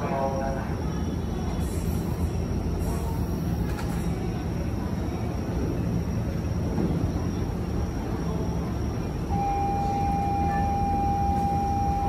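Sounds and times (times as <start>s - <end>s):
electric train rumbling: 0.0s - 12.0s
electronic departure tone: 9.3s - 12.0s.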